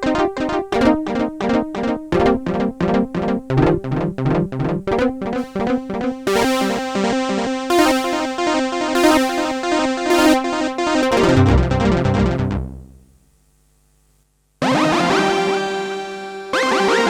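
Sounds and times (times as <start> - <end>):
synthesizer sequenced pattern: 0.0 - 13.0
deep synth bass notes: 2.2 - 8.3, 10.1 - 13.1.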